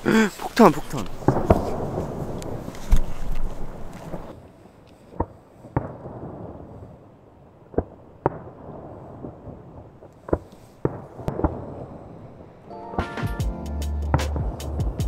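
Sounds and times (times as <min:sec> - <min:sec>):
fireworks bursting with bangs: 0:00.5 - 0:07.0, 0:07.7 - 0:12.4.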